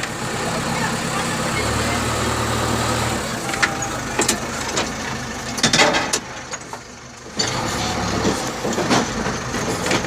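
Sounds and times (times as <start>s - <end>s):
diesel engine humming: 0.0s - 10.0s
metal knocks and clanks: 5.6s - 7.6s, 8.2s - 10.0s.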